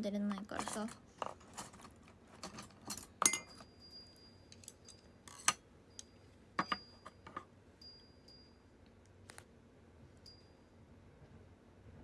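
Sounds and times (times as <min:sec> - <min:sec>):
chopsticks clinking on a dish: 0:02.4 - 0:05.6.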